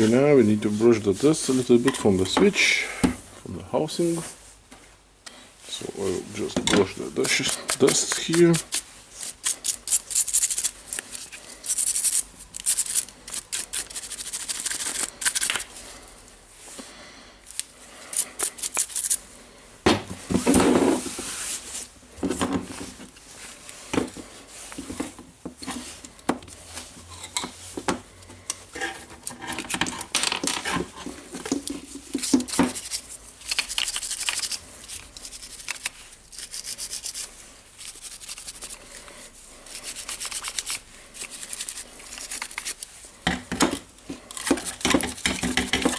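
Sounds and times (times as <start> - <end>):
brush scrubbing plastic: 5.9 - 15.8, 30.8 - 43.2.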